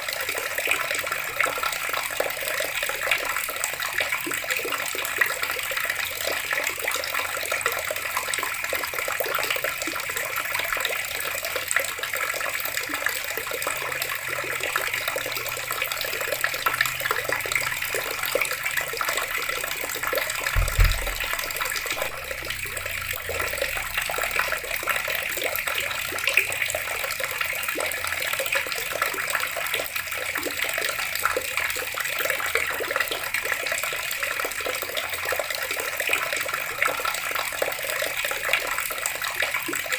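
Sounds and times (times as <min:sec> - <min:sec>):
water running from tap: 0:00.0 - 0:39.9
low thump: 0:20.5 - 0:23.3.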